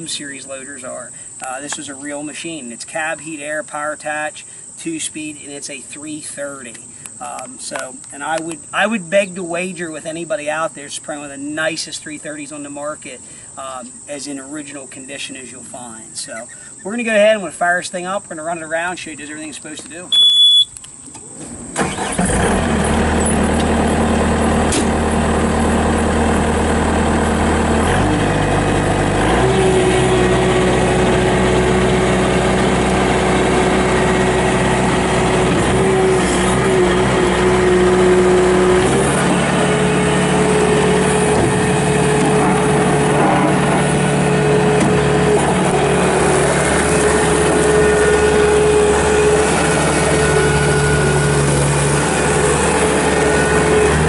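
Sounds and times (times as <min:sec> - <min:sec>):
diesel engine starting and running: 0:20.1 - 0:54.0.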